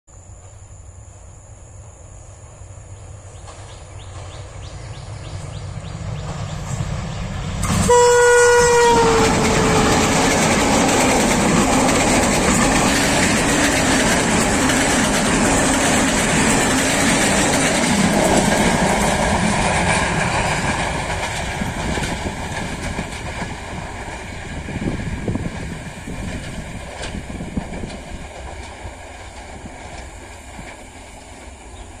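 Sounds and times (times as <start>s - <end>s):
diesel train passing: 0.3s - 32.0s
train horn blast: 7.6s - 10.9s.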